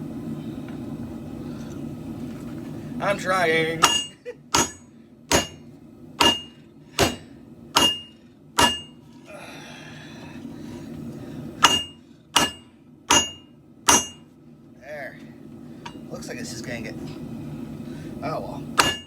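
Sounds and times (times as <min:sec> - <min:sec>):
hammer striking steel on anvil: 0:03.8 - 0:09.0, 0:11.6 - 0:14.3, 0:18.8 - 0:19.0.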